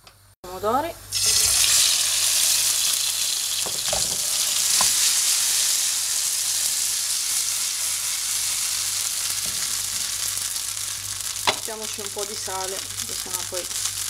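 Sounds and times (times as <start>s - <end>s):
food sizzling in oil: 0.6s - 14.0s.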